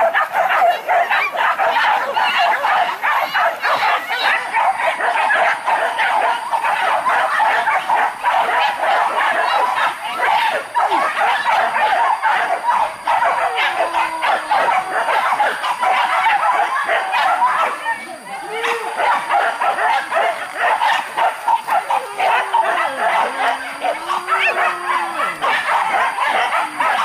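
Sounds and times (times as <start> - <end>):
pack of dogs barking and yelping: 0.0 - 27.0.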